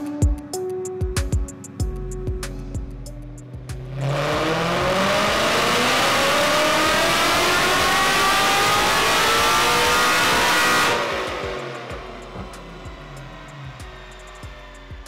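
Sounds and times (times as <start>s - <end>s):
supercharged engine at full throttle: 3.7s - 15.0s.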